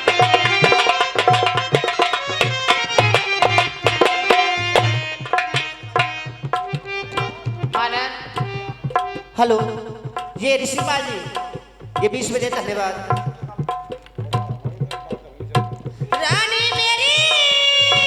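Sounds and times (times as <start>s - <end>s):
sustained melodic notes: 0.0s - 10.1s
hand drum quick rhythm: 0.0s - 18.0s.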